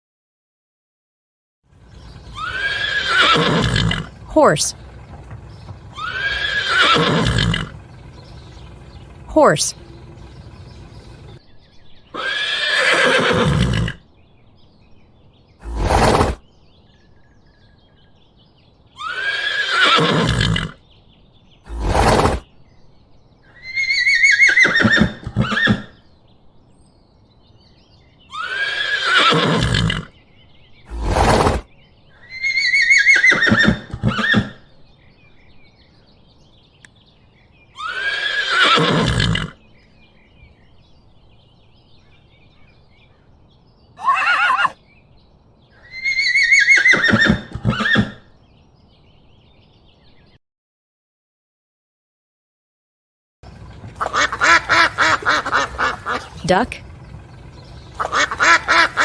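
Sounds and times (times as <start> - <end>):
horse neighing and whinnying: 1.8 - 11.4, 12.1 - 14.0, 15.6 - 16.4, 19.0 - 20.8, 21.7 - 22.4, 23.6 - 25.9, 28.3 - 30.1, 30.9 - 31.6, 32.2 - 34.7, 37.8 - 39.6, 44.0 - 44.8, 45.8 - 48.3, 53.5 - 59.0.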